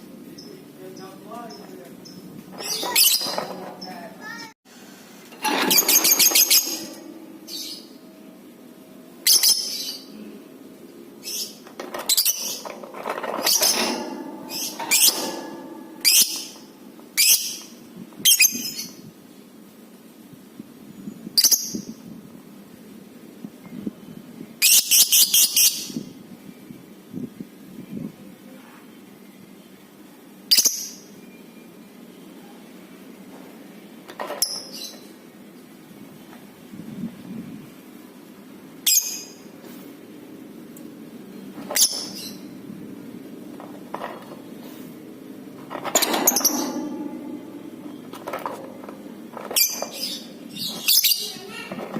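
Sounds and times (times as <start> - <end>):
lovebird chirping: 7.4 - 8.0
steady low hum: 42.5 - 50.6.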